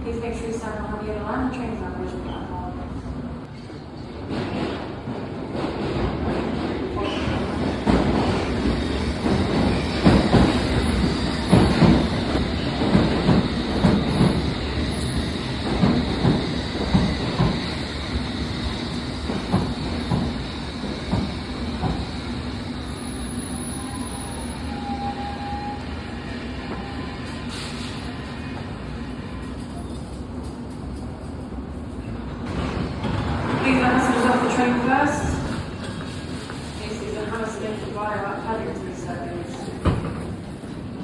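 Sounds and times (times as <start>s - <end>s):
train humming at platform: 0.0s - 41.0s
underground train braking: 0.0s - 41.0s
train wheels clattering over rail joints: 7.8s - 22.4s.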